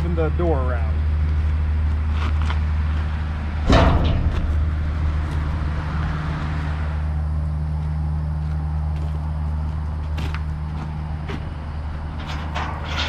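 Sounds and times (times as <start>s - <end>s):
diesel engine idling: 0.0s - 12.6s
loud metal clank: 3.6s - 5.3s, 12.1s - 13.0s.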